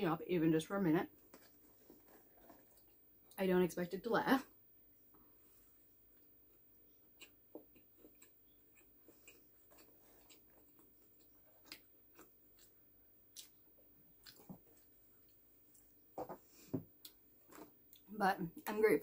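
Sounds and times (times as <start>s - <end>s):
person chewing food: 1.2s - 3.0s, 5.4s - 18.1s.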